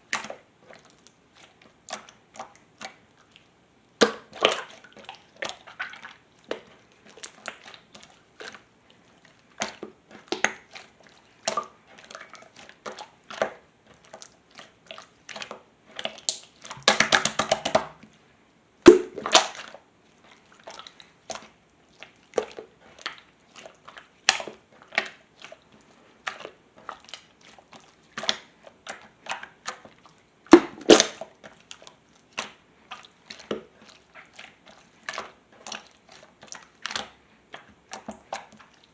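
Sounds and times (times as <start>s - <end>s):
slime squished by hand: 18.9s - 19.8s, 26.2s - 32.6s.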